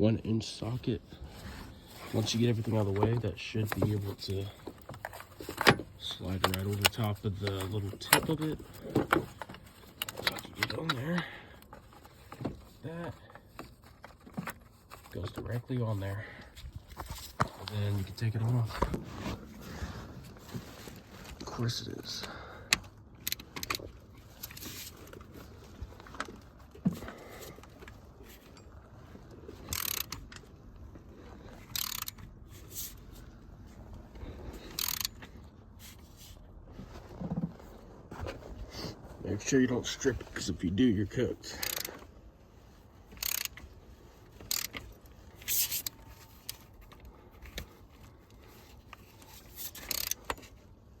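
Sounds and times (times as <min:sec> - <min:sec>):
socket wrench ratcheting: 0:23.2 - 0:24.8, 0:29.6 - 0:30.4, 0:31.6 - 0:32.3, 0:34.6 - 0:35.2, 0:41.6 - 0:42.0, 0:43.1 - 0:43.6, 0:44.3 - 0:46.6, 0:49.6 - 0:50.5
sharp metal clicks: 0:29.7 - 0:30.5, 0:31.7 - 0:32.2, 0:34.7 - 0:35.2, 0:43.1 - 0:43.6, 0:44.4 - 0:44.9, 0:49.8 - 0:50.5.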